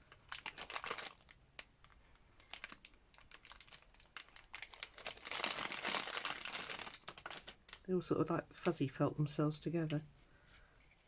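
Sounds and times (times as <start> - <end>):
cocoons rustling and crinkling: 0.0 - 8.8.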